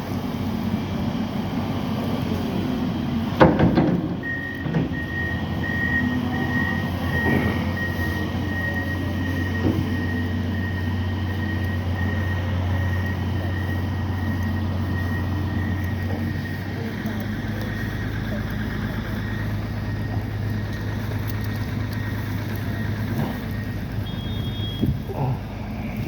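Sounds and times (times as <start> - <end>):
heavy engines droning: 0.0 - 26.0
loud metallic knock: 3.4 - 5.0.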